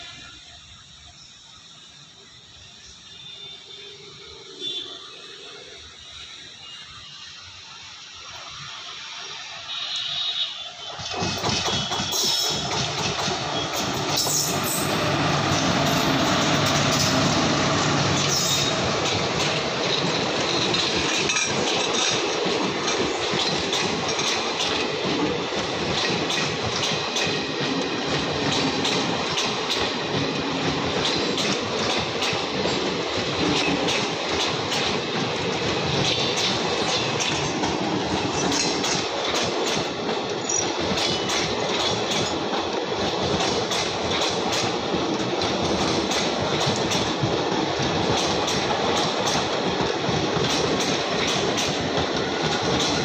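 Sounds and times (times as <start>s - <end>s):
train coaches rumbling past: 0.0s - 53.0s
wheels clicking over rail joints: 10.9s - 53.0s.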